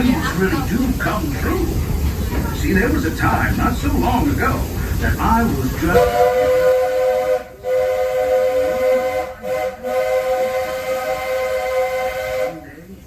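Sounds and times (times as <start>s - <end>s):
steam locomotive chime whistle: 5.9s - 12.7s.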